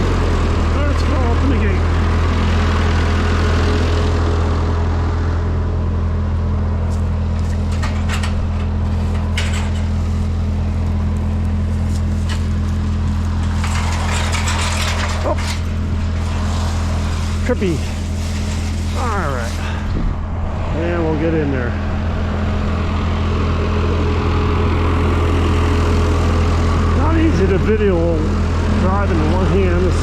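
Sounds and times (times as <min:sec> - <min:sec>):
tractor engine running: 0:00.0 - 0:30.0
short metallic clatters: 0:06.9 - 0:19.6.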